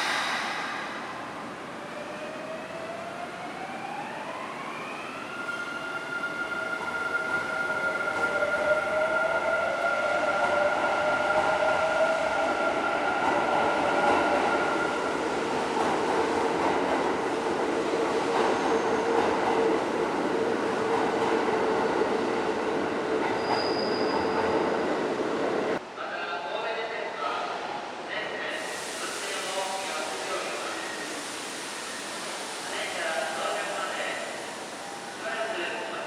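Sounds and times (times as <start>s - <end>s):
electric train rumbling: 0.0s - 5.4s.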